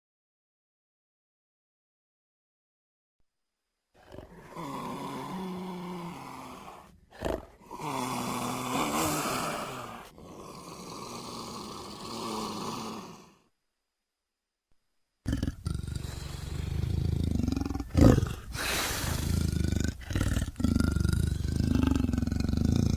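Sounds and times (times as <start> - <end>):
jaguar growling: 4.0 - 13.3, 15.3 - 22.9.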